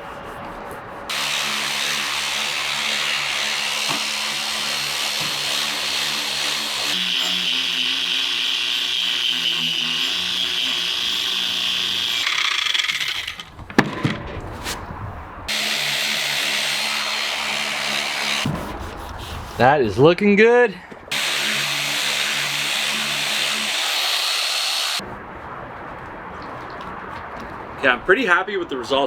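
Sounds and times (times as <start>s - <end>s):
power sander on metal: 1.1s - 13.4s, 15.5s - 18.5s, 21.1s - 25.0s.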